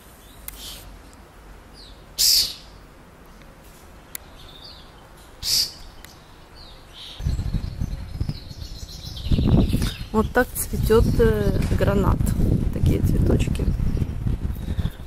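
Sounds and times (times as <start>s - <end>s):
songbird harsh calls: 1.8s - 2.8s, 4.3s - 10.4s
low rumbling on microphone: 7.2s - 15.0s.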